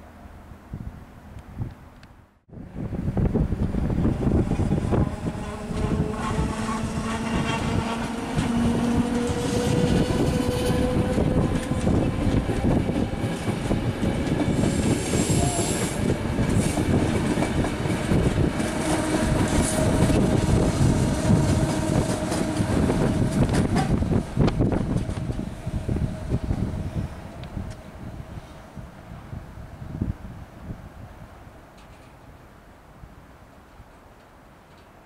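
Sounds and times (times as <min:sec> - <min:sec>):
train rumble: 0:02.5 - 0:30.5
wheels clattering over rail joints: 0:04.0 - 0:14.8.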